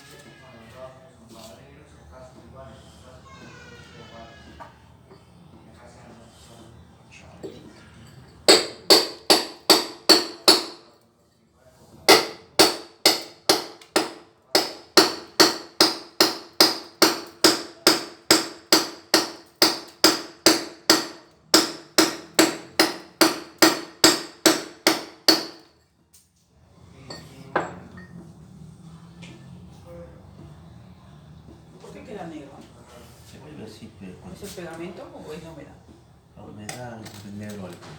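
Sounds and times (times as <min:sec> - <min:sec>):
hammer chipping ceramic tiles: 0:08.5 - 0:10.8, 0:12.1 - 0:25.7.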